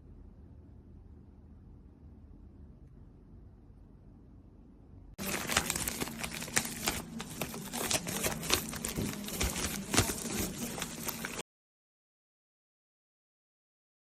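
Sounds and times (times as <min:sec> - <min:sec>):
faint steady hum: 0:00.0 - 0:11.4
plastic packaging crinkling: 0:05.2 - 0:11.4.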